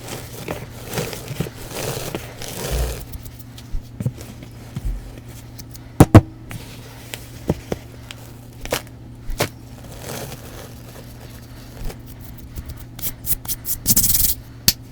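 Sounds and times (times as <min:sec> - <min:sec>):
cleanser powder blocks crunching: 0:08.6 - 0:12.0.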